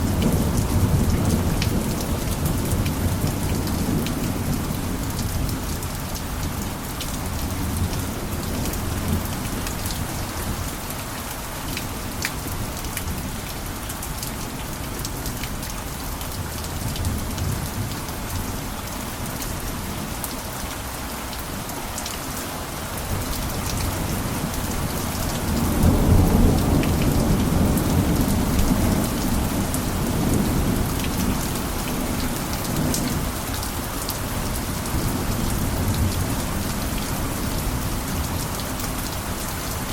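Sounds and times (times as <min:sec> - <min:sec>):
heavy rain on a roof: 0:00.0 - 0:39.9
low thunder rumbling: 0:23.1 - 0:33.3.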